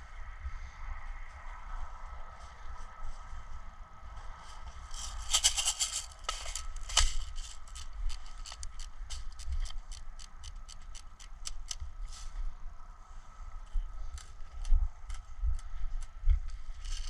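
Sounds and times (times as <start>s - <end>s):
sharp clicks and crackles: 4.9s - 12.0s, 14.1s - 17.0s.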